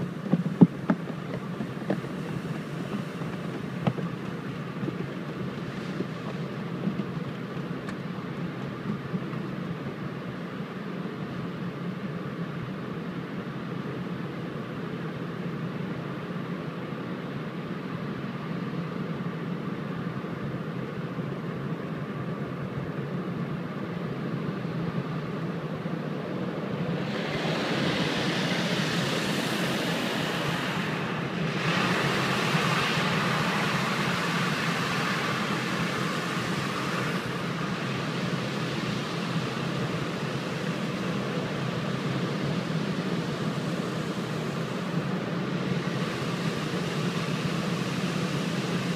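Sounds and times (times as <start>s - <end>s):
car wash equipment rumbling: 0.0s - 11.5s, 25.0s - 48.9s
spray hissing: 1.4s - 6.5s, 26.8s - 45.0s, 45.7s - 48.9s.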